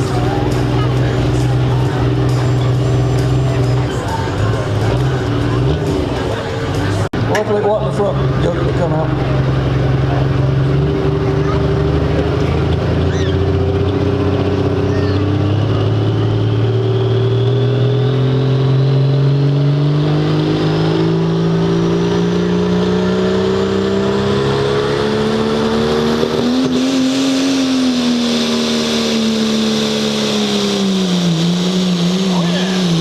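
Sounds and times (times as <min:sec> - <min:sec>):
vehicle engine under load: 0:00.0 - 0:33.0.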